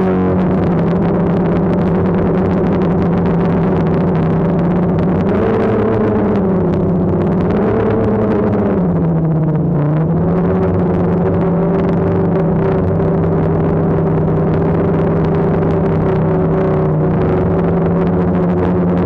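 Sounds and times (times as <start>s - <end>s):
drone propellers humming: 0.0s - 19.0s.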